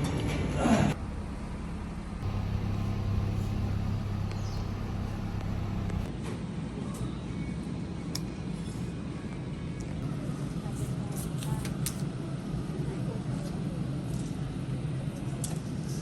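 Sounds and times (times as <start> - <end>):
motor vehicle rumble: 2.0 - 6.1
low hum: 2.2 - 6.1.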